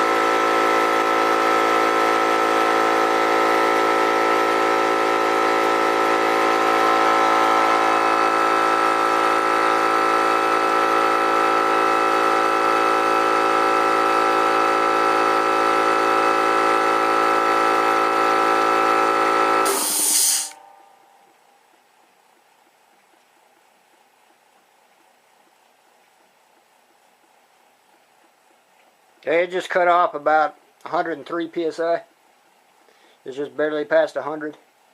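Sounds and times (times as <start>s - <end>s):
air compressor running: 0.0s - 20.6s
air hiss: 19.7s - 20.6s.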